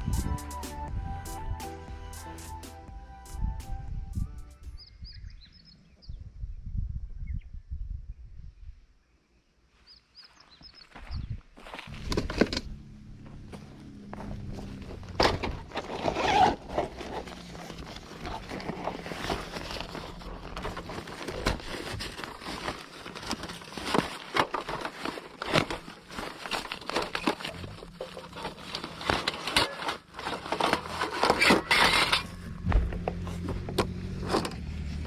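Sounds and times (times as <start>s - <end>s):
scraping and rustling: 11.6s - 35.0s.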